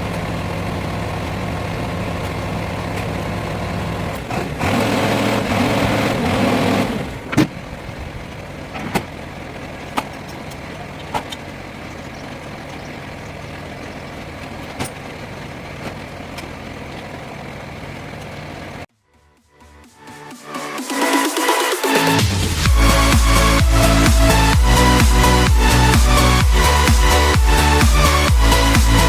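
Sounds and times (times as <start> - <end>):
diesel lorry engine running: 0.0 - 18.9, 21.8 - 29.0
rush of noise: 19.8 - 29.0.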